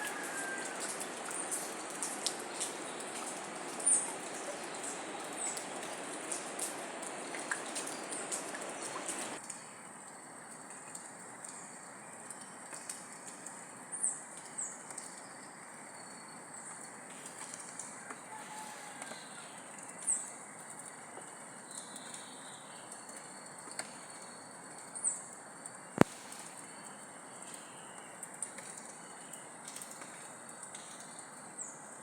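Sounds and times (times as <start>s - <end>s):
soft hiss: 25.6s - 27.9s.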